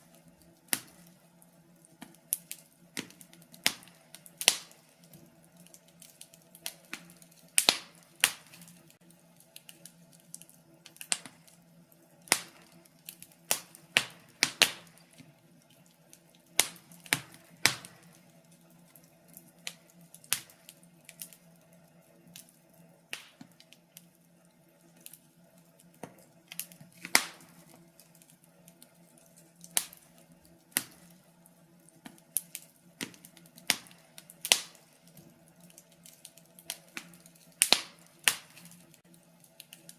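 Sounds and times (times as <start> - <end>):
fire crackling: 0.0 - 39.9.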